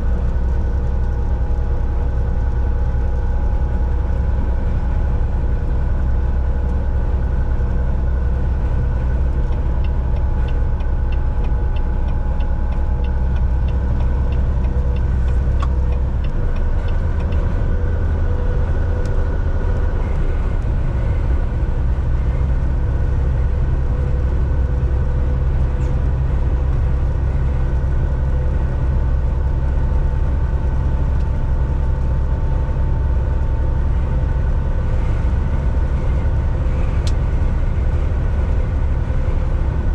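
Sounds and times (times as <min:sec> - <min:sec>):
road noise: 0:00.0 - 0:39.9
truck engine drone: 0:00.0 - 0:39.9.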